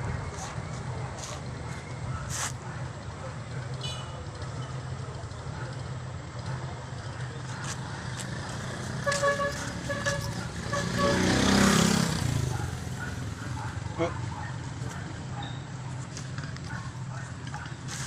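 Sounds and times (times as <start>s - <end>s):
vehicle horn short toots: 3.8s - 4.2s, 8.9s - 11.8s
vehicle passing close by: 7.6s - 15.2s.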